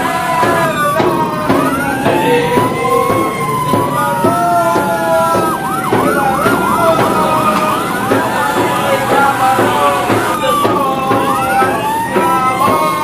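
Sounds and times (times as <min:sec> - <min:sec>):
siren yelping: 0:00.0 - 0:13.0
sirens wailing: 0:00.0 - 0:13.0.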